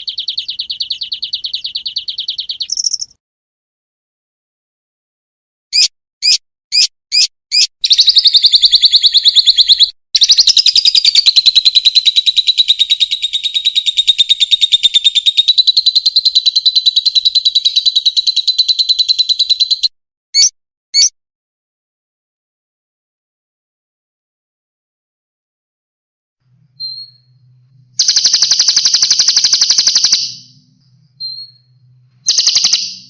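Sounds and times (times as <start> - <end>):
songbird trilling: 0.0 - 3.2, 5.8 - 21.1, 26.8 - 27.4, 28.0 - 33.0.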